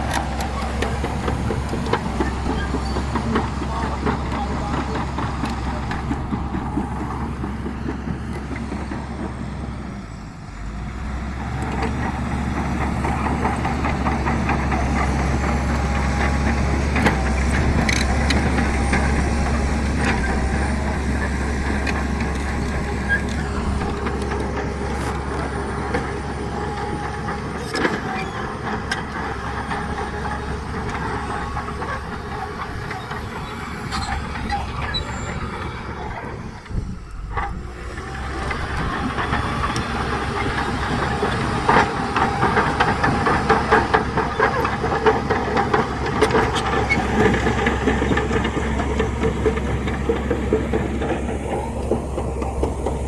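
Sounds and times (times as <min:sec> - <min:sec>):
diesel engine under load: 0:00.0 - 0:53.0.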